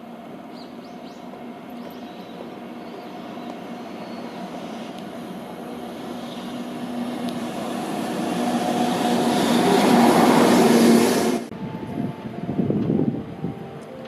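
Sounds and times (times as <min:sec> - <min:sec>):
freight train passing: 0:00.0 - 0:14.0.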